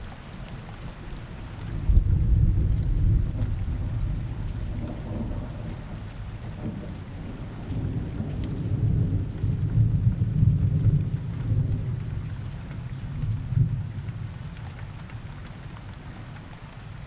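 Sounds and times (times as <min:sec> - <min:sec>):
rain: 0:00.0 - 0:17.0
rolling thunder rumble: 0:01.8 - 0:12.3.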